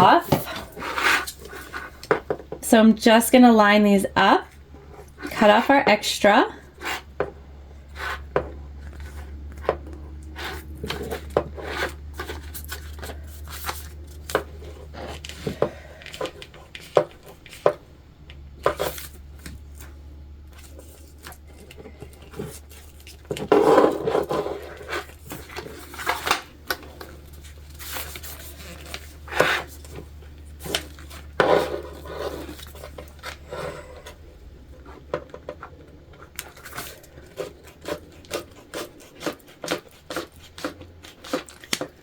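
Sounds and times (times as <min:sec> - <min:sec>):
steady low hum: 0:00.0 - 0:42.0
rubbing scrapes: 0:00.1 - 0:02.0, 0:06.8 - 0:07.1, 0:07.8 - 0:09.4, 0:10.3 - 0:15.6, 0:22.2 - 0:26.2, 0:26.8 - 0:35.0.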